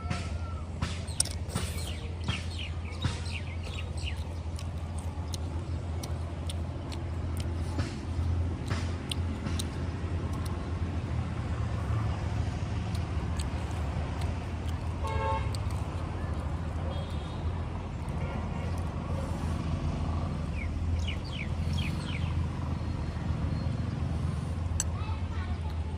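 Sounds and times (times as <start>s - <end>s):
person chewing with mouth clicks: 1.0s - 11.0s, 12.7s - 17.3s.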